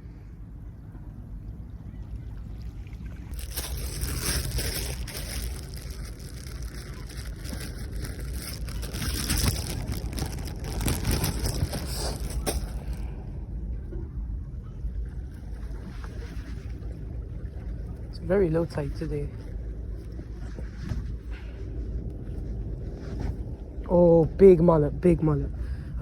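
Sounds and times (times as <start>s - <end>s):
sea water sloshing: 1.8s - 13.2s.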